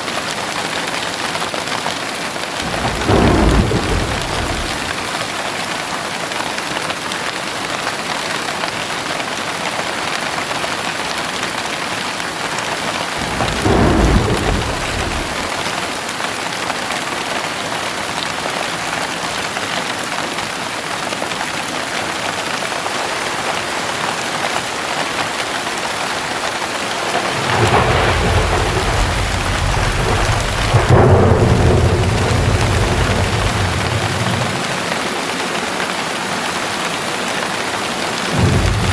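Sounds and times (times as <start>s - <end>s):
heavy rain falling: 0.0s - 38.9s
thunder rumbling: 2.6s - 5.6s, 13.1s - 16.2s, 26.8s - 36.0s, 38.2s - 38.9s.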